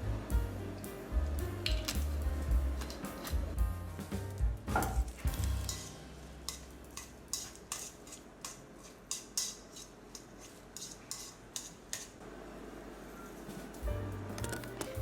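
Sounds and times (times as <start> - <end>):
metal utensil scraping a dish: 5.6 - 12.1.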